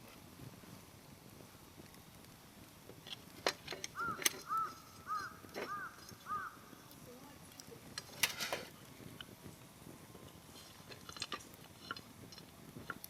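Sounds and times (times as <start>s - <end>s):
firewood popping: 0.0s - 13.0s
wood fire crackling: 0.0s - 13.0s
crow cawing: 4.0s - 6.6s.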